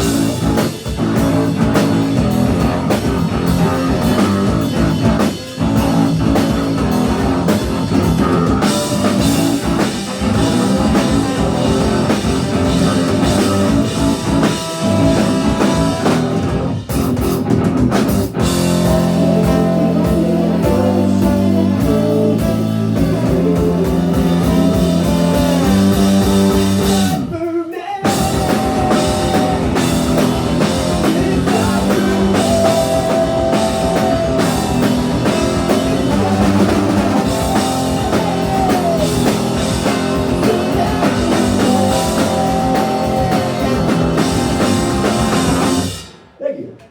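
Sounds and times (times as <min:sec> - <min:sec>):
loud electric guitar: 0:00.0 - 0:27.4, 0:28.0 - 0:46.4
drum kit: 0:00.0 - 0:46.9.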